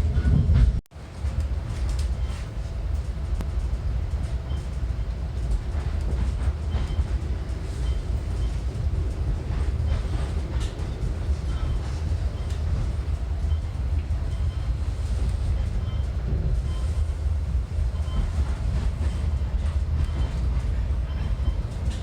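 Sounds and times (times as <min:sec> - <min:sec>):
train rolling past: 0:00.0 - 0:22.0.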